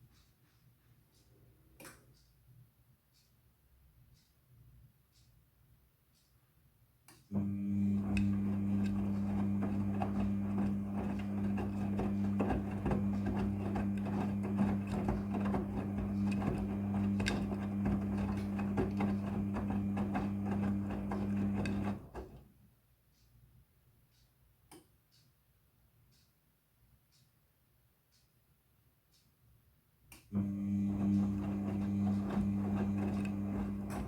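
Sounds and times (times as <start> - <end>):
washing machine running: 7.4 - 22.5, 30.3 - 34.0.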